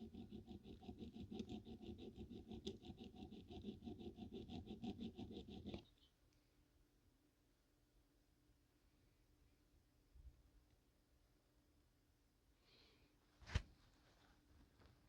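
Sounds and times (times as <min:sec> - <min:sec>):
hand file rubbing on metal: 0:00.0 - 0:05.9.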